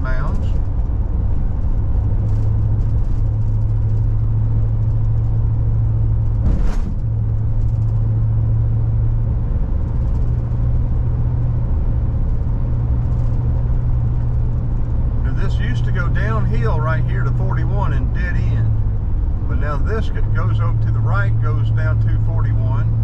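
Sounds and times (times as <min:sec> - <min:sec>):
car engine hum: 0:00.0 - 0:23.0
tyre rumble: 0:06.2 - 0:08.0
whoosh: 0:06.4 - 0:07.1.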